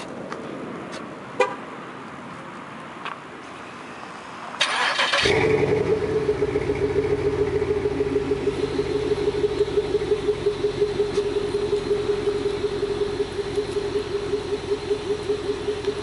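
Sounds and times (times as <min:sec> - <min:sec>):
car engine cranking and idling: 0:04.6 - 0:16.0.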